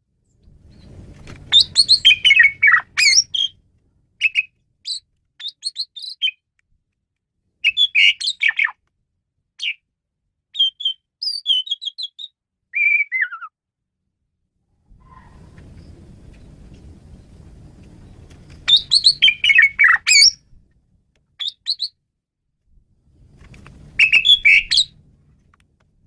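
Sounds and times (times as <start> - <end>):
starling singing: 1.5 - 3.6, 4.2 - 6.4, 7.6 - 8.8, 10.6 - 13.5, 18.7 - 20.4, 24.0 - 25.0.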